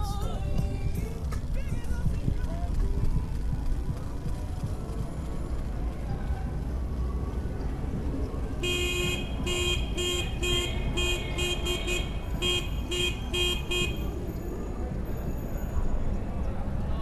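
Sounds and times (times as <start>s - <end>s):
horn tooting: 8.6s - 14.8s.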